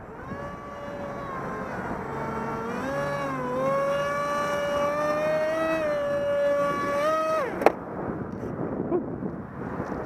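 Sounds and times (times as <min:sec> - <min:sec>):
model propeller motor whine: 0:00.0 - 0:07.8
wind on microphone: 0:00.0 - 0:10.0.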